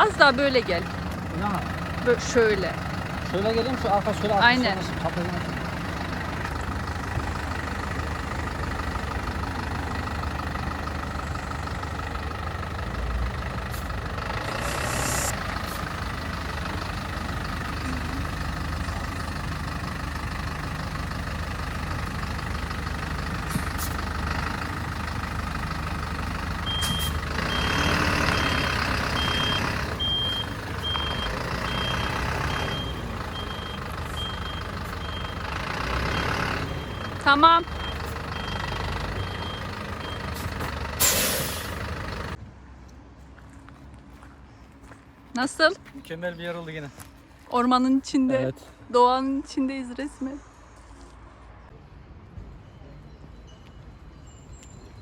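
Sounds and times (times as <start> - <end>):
vehicle engine idling: 0.0 - 49.9
short high beeps: 26.7 - 27.8.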